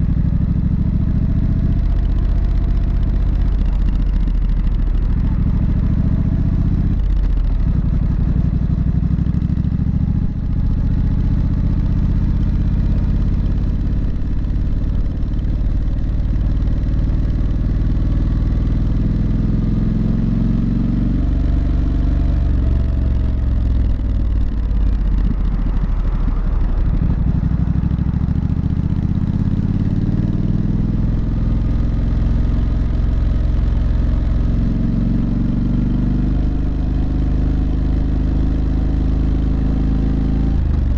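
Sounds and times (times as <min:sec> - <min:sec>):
motorcycle engine and exhaust: 0:00.0 - 0:40.9.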